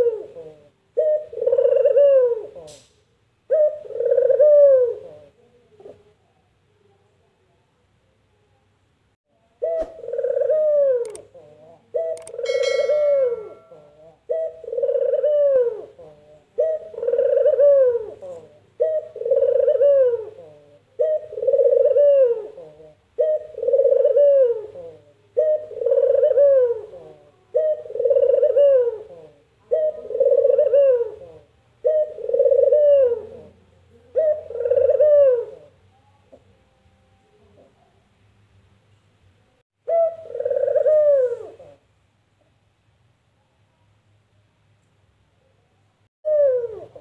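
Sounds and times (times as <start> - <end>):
dove cooing: 0.0 - 2.8, 3.5 - 6.1, 9.6 - 36.5, 39.8 - 41.8, 46.3 - 47.0.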